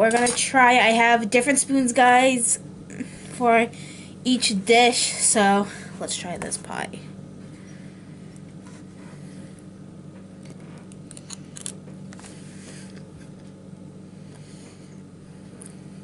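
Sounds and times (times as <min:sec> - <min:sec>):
steady low hum: 0:00.0 - 0:16.0
small clicks and scrapes: 0:10.4 - 0:13.4.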